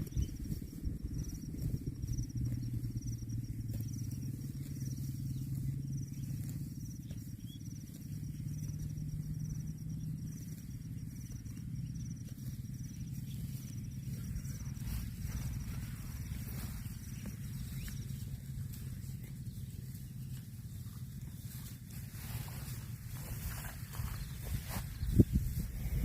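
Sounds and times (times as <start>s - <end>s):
cricket chirping: 0.0s - 26.0s.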